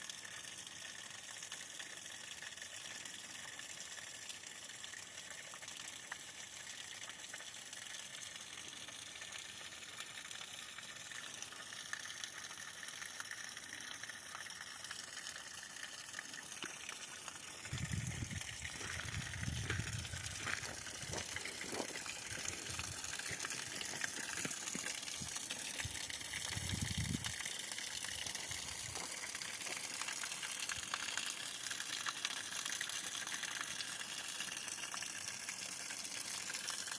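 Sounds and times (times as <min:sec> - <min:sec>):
water splashing from pipe: 0:00.0 - 0:36.9.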